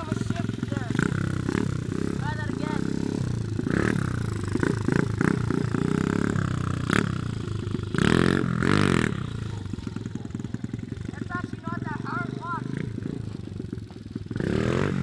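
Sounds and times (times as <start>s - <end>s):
pit bike engine revving: 0.0s - 15.0s.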